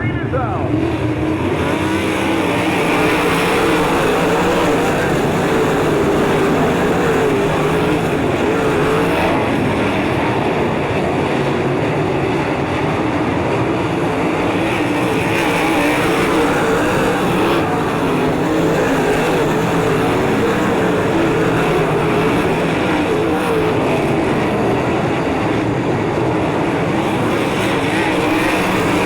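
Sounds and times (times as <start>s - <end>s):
race car engines running hard: 0.0s - 29.0s.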